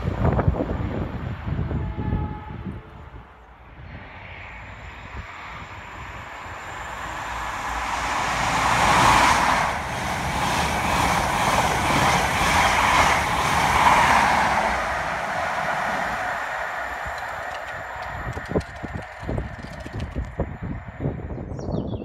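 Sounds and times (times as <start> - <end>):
high-speed train passing: 0.0 - 22.0
wheels clattering over rail joints: 15.7 - 20.9.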